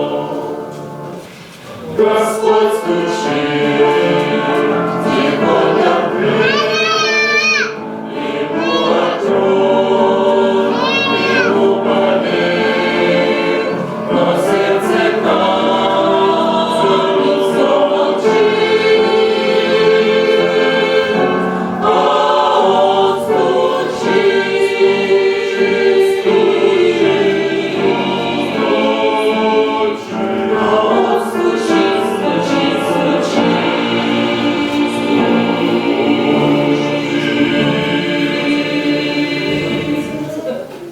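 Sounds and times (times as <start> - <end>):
choir singing a hymn: 0.0 - 40.9.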